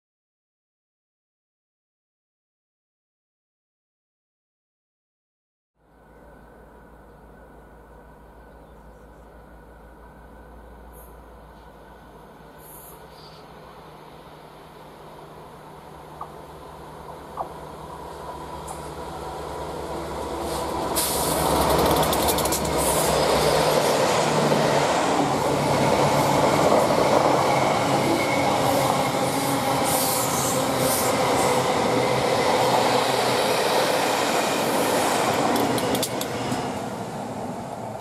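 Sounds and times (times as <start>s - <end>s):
locomotive engine hum: 5.9s - 38.0s
coach wheels rushing on rails: 14.7s - 38.0s
sharp wheel clicks: 21.5s - 22.8s.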